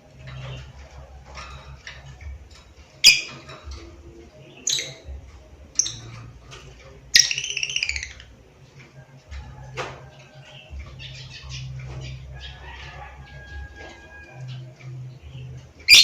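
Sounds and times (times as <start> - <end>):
rapid chattering trill: 0.6 - 8.6
lovebird chirping: 3.0 - 3.4, 4.4 - 6.3, 7.1 - 8.3, 14.6 - 16.0.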